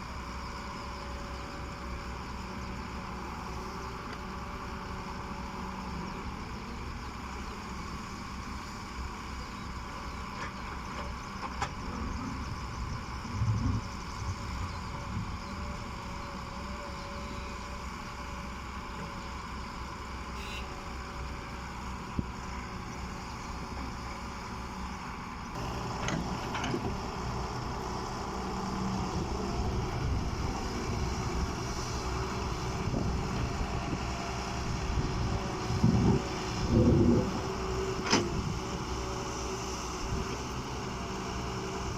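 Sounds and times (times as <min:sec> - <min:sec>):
excavator engine running: 0:00.0 - 0:41.9.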